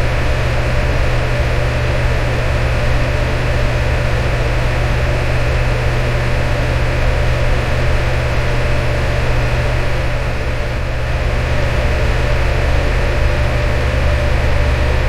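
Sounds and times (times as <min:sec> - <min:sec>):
electric fan running: 0:00.0 - 0:15.0.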